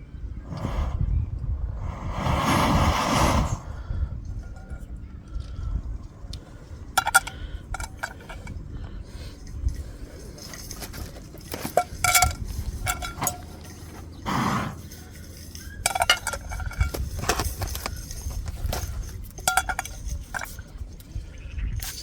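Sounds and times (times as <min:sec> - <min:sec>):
metal cookware clinking: 0:10.4 - 0:14.0, 0:15.0 - 0:20.7.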